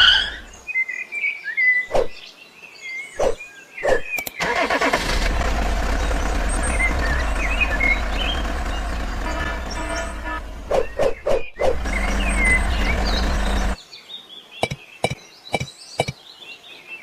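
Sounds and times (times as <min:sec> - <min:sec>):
birds chirping: 0:00.0 - 0:17.0
engine running with low hum: 0:04.4 - 0:13.8.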